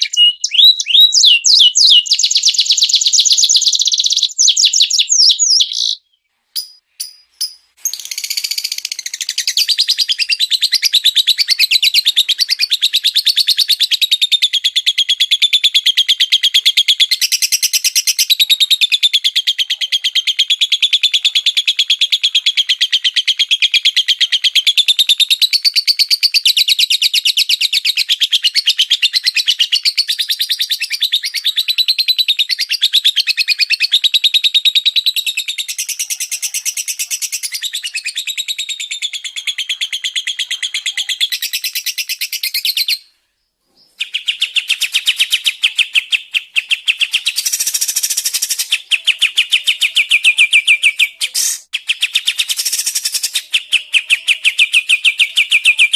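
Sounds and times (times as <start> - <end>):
songbird rapid trill: 6.6 - 19.5, 28.4 - 43.1, 43.9 - 55.9.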